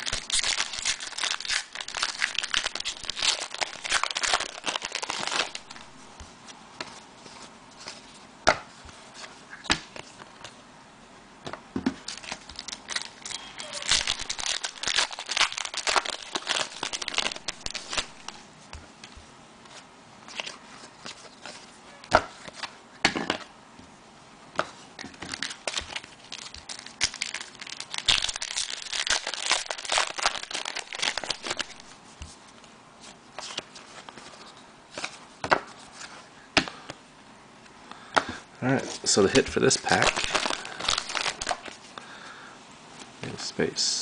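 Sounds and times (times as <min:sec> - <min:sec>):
plastic packaging crinkling and tearing: 0:00.0 - 0:06.0, 0:12.0 - 0:18.4, 0:25.0 - 0:31.9, 0:38.9 - 0:41.9
cards clicking and rustling: 0:13.7 - 0:18.4, 0:24.6 - 0:32.4.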